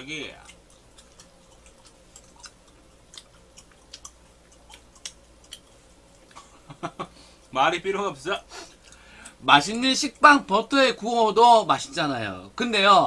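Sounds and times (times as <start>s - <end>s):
crunchy chewing: 0.0s - 6.7s, 8.5s - 10.5s.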